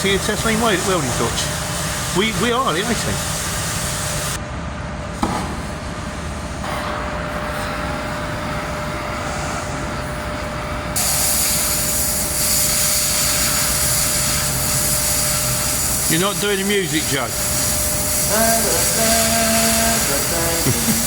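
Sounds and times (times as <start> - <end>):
cutting torch gas hissing: 0.0 - 4.4, 5.2 - 21.0.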